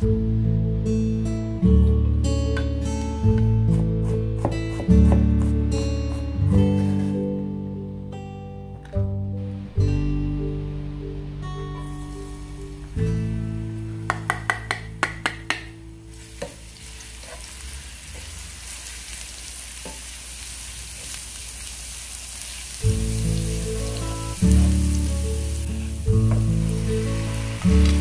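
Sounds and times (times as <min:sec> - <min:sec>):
soft background music: 0:00.0 - 0:19.7, 0:22.7 - 0:28.0
garlic sizzling in hot oil: 0:11.9 - 0:13.0, 0:16.1 - 0:28.0.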